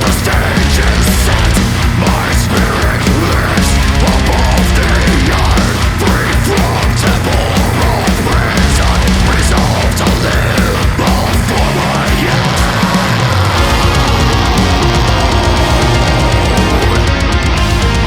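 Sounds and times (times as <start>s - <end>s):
distorted guitars: 0.0s - 18.0s
heavy drums and cymbals: 0.0s - 18.0s
melodic lead line: 13.5s - 18.0s.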